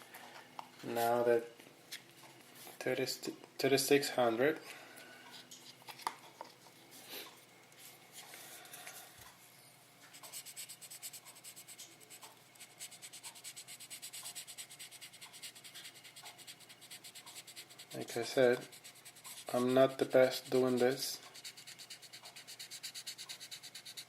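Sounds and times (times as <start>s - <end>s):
sandpaper rubbing on plastic: 10.4s - 24.0s.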